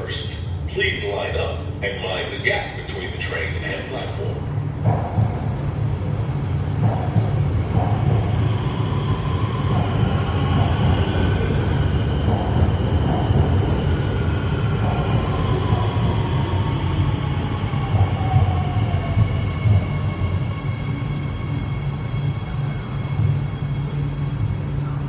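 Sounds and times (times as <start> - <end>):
train rumbling into station: 0.0 - 25.0.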